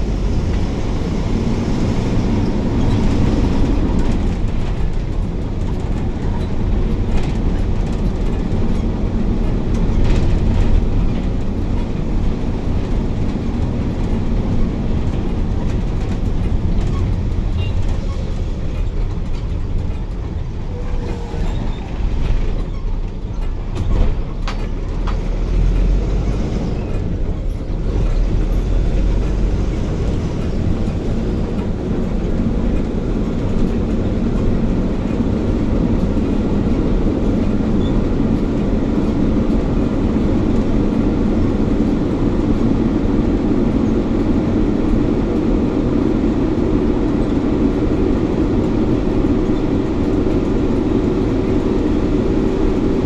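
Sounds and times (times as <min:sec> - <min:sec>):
bus engine and road rumble: 0:00.0 - 0:53.0.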